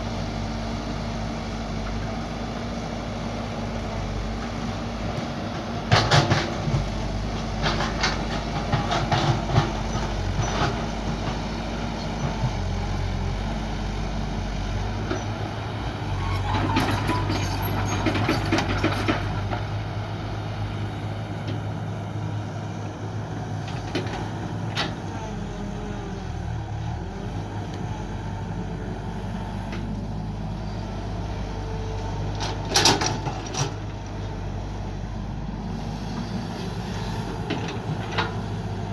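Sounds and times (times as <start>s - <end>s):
excavator diesel engine running: 0.0s - 38.9s
excavator digging knocks and clanks: 3.8s - 14.3s, 14.9s - 38.9s.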